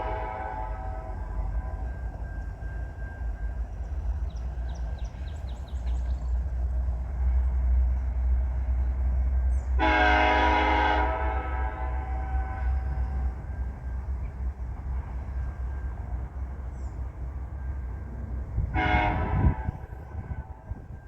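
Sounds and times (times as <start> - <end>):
locomotive air horn blast: 0.0 - 1.9, 9.8 - 13.4, 18.6 - 20.8
diesel locomotive rumbling: 0.0 - 21.0.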